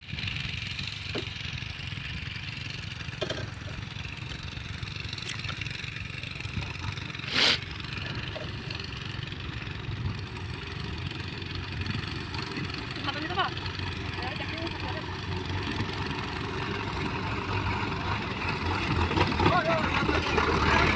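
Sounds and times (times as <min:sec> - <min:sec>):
heavy diesel machinery running: 0:00.0 - 0:20.9.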